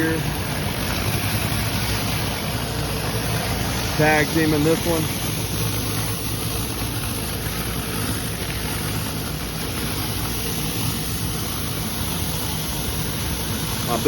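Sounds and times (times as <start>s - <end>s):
pressure washer running: 0.0s - 14.0s.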